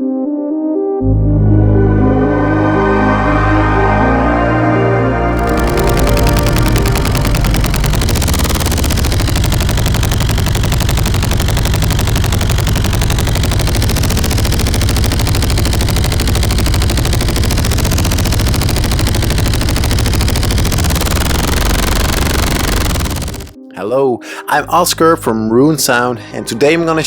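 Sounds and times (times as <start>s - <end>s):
synthesized motorcycle engine pulses: 5.3s - 23.6s.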